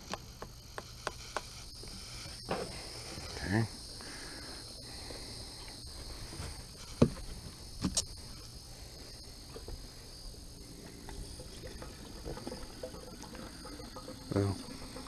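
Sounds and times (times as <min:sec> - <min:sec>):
insect chirring: 0:00.0 - 0:15.0.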